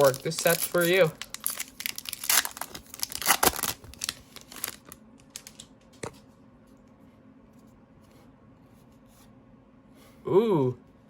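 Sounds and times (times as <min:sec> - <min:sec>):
trading cards clicking and rustling: 0:00.0 - 0:06.2.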